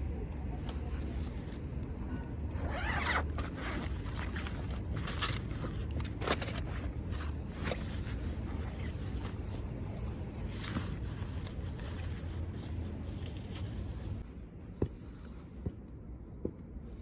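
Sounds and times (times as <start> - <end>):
rustling: 0.6 - 15.7
zipper being pulled: 2.5 - 9.7.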